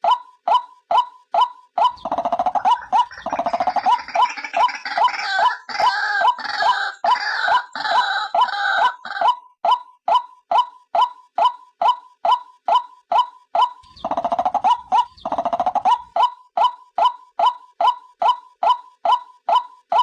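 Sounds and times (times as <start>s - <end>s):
waterhen short repeated notes: 1.8s - 9.4s
harsh rapid croaking calls: 1.9s - 9.3s, 13.8s - 16.2s.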